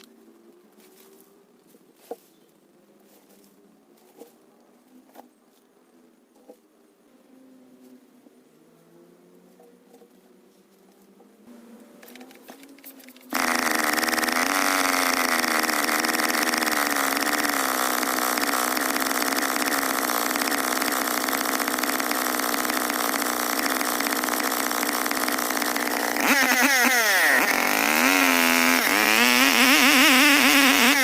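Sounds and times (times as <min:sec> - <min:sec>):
chainsaw running at high speed: 0:13.3 - 0:31.0.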